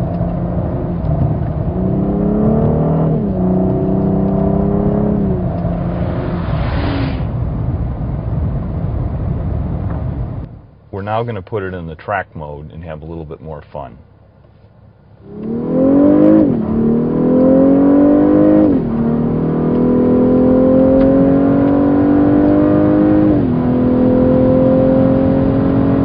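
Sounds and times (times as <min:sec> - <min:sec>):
quick gear upshifts: 0:00.0 - 0:06.4, 0:14.4 - 0:26.0
car engine accelerating: 0:00.0 - 0:10.6, 0:15.1 - 0:26.0.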